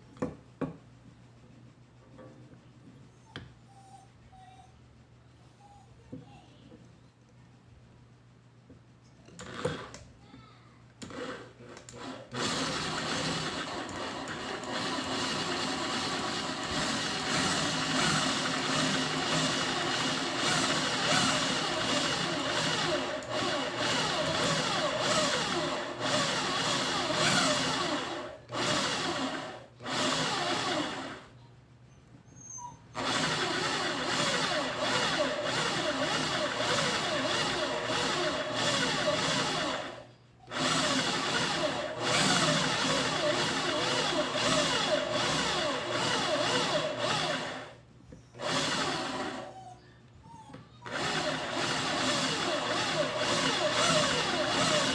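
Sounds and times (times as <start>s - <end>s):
electric drill drilling: 11.0s - 31.3s, 33.0s - 47.8s, 48.4s - 49.5s, 50.9s - 54.9s.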